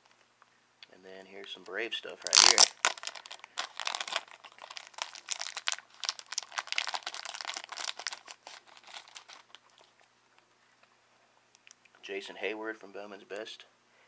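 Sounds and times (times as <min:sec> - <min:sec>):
card packaging crinkling: 0:02.2 - 0:10.0.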